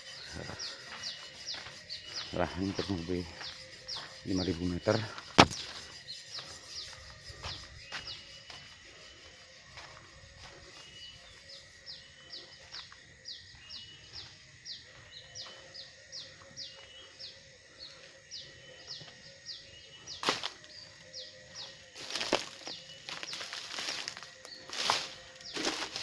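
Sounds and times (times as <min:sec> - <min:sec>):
dry crackling rustles: 0:22.0 - 0:26.0.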